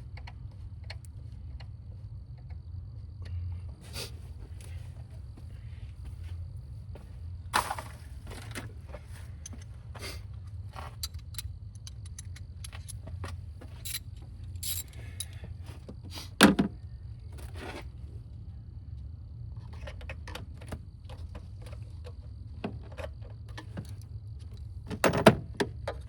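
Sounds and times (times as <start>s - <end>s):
metal tools clicking and clinking: 10.8s - 13.1s, 13.7s - 15.4s.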